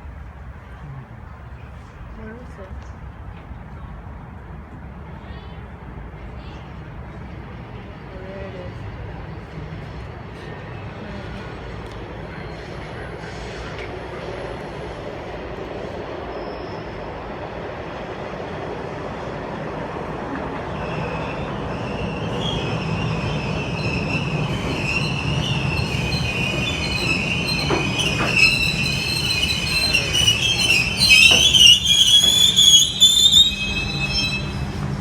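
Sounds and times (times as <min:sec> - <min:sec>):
subway train rumble: 0:00.0 - 0:35.0
metallic wheel squeal: 0:21.7 - 0:34.8.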